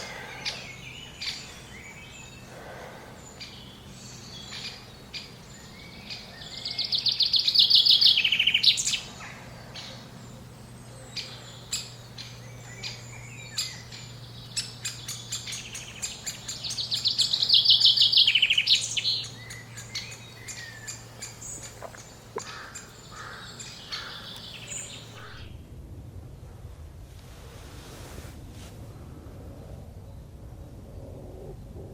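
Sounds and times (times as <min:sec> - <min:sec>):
songbird trilling: 0:00.0 - 0:02.5, 0:03.2 - 0:25.6.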